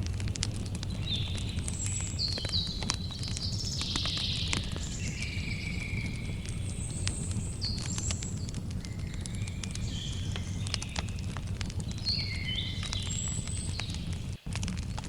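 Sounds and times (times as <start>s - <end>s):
low rumble: 0.0s - 3.6s
campfire crackling and popping: 0.0s - 15.0s
birds chirping and whistling: 0.6s - 14.4s.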